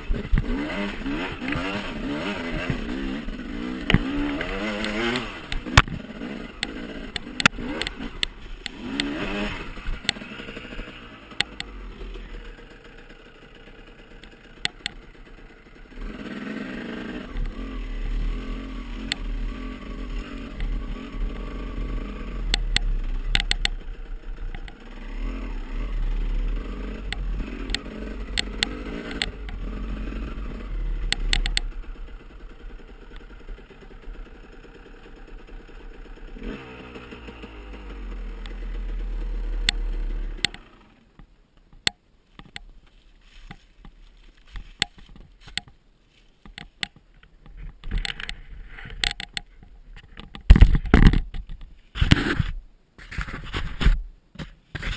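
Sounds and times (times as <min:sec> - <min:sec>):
motorcycle engines revving: 0:00.0 - 0:41.1
sharp knocks and clicks: 0:22.4 - 0:24.8, 0:27.1 - 0:29.6, 0:31.0 - 0:31.8, 0:41.2 - 0:42.8, 0:43.4 - 0:45.8, 0:46.4 - 0:52.6.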